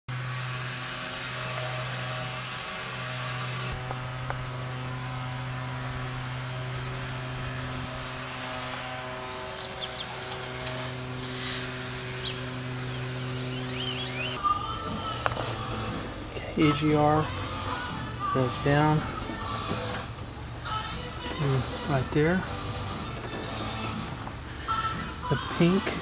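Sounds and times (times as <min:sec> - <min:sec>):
engine idling: 0:00.2 - 0:26.0
birds chirping: 0:01.0 - 0:26.0.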